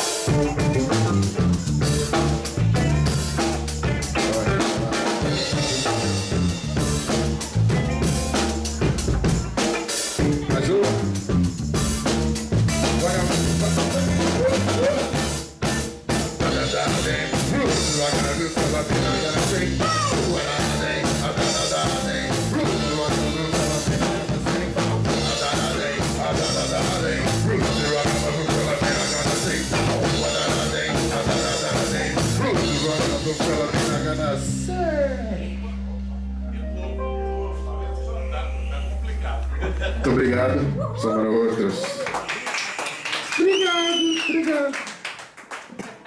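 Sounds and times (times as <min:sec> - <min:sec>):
drum kit with rimshots: 0:00.0 - 0:36.6
funk band playing: 0:00.0 - 0:42.3.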